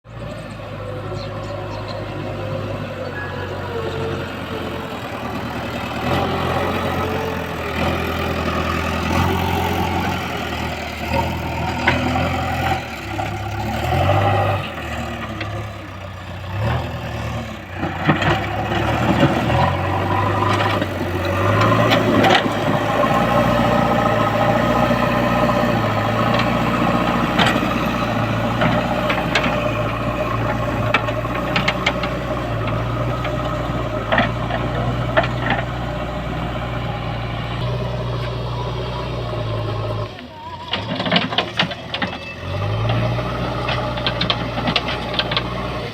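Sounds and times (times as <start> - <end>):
diesel engine under load: 0.0 - 45.9
metallic clanks and rattles: 40.7 - 43.0.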